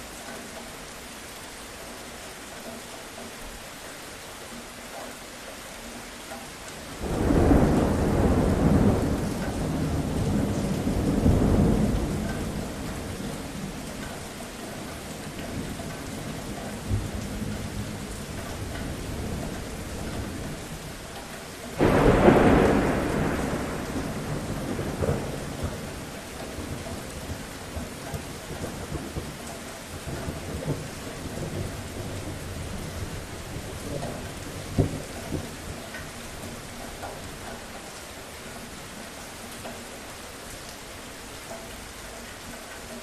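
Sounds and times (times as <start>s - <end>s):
steady rain: 0.0s - 43.0s
thunder rumbling: 7.0s - 14.2s, 21.7s - 36.7s.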